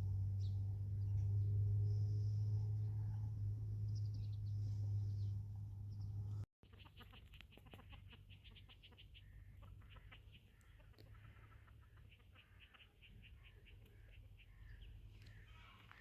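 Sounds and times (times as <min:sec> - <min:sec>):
steady low hum: 0:00.0 - 0:06.5
birds chirping: 0:00.0 - 0:16.0.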